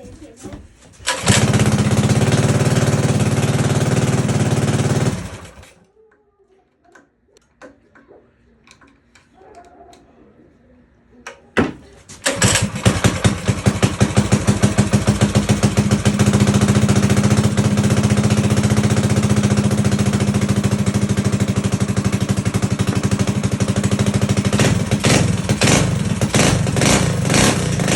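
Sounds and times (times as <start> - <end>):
minibike engine puttering and revving: 1.0 - 5.8, 12.2 - 27.9.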